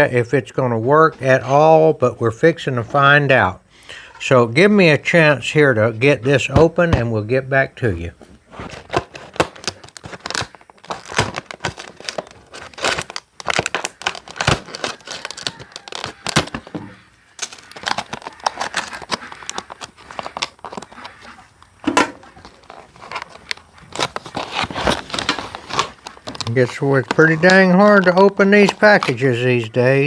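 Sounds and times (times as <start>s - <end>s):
plastic packaging crinkling and tearing: 8.4s - 30.0s.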